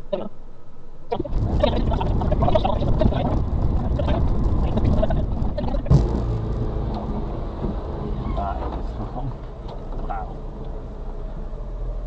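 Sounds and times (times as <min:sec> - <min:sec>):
tyres crunching over rough ground: 0:01.2 - 0:11.4
truck engine running: 0:01.2 - 0:12.0.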